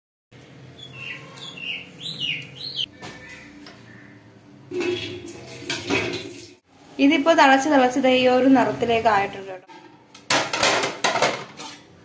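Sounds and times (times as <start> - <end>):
bird chirping: 0.7 - 4.3
metal dish rack and dishes clattering: 4.7 - 6.5, 9.7 - 11.8.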